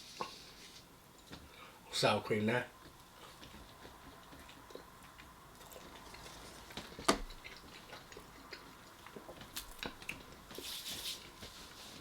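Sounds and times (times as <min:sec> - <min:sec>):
chewing food: 0:02.8 - 0:11.5.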